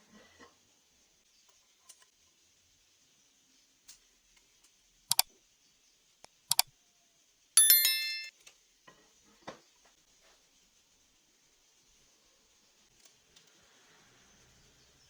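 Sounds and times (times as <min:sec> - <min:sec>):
sharp clicks: 0:06.3 - 0:06.6
bright chime: 0:07.6 - 0:08.3.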